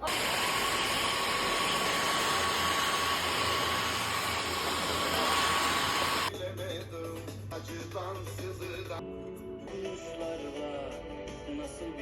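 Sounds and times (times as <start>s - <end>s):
rushing air: 0.0s - 6.3s
small electric appliance motor: 0.0s - 6.3s
thin steady whine: 0.0s - 6.3s.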